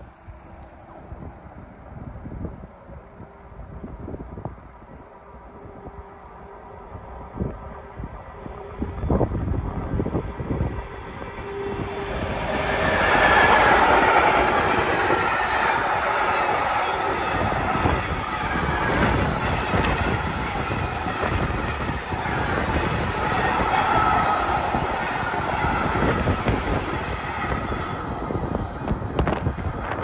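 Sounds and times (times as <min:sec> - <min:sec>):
freight train rumble and clatter: 0:00.0 - 0:30.0
high wheel squeal: 0:08.6 - 0:29.4.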